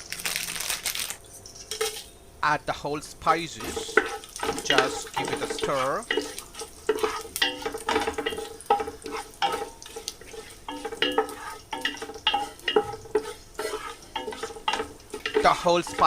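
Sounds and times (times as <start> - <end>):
oil sizzling: 0.0 - 16.0
spoon scraping and knocking pan: 3.5 - 16.0.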